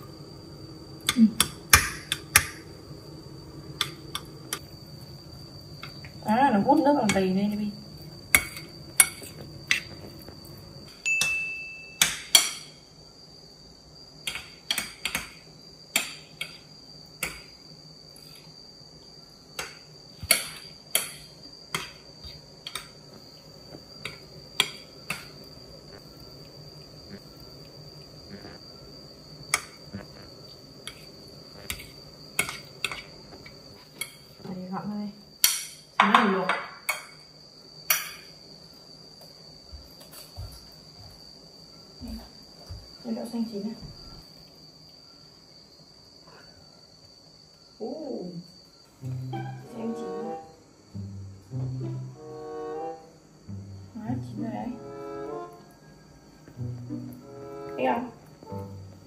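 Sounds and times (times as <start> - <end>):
metal spoon clinking in bowl: 11.1 - 12.6.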